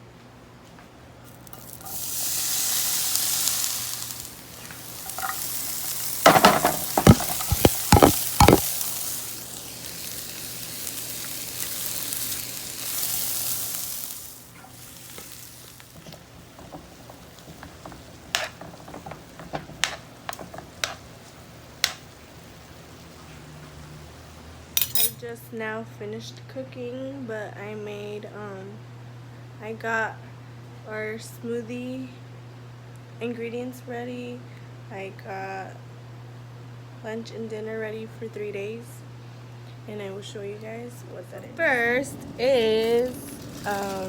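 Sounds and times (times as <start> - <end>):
food sizzling in a frying pan: 1.3 - 25.2, 41.8 - 44.0
utensils clinking: 5.0 - 8.6, 24.8 - 25.2, 42.7 - 44.0
utensil knocking against pan: 6.3 - 8.6.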